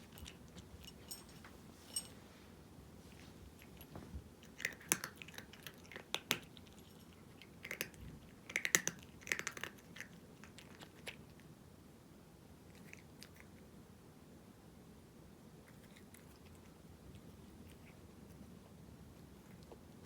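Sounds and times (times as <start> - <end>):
cat crunching dry kibble: 3.6 - 11.4.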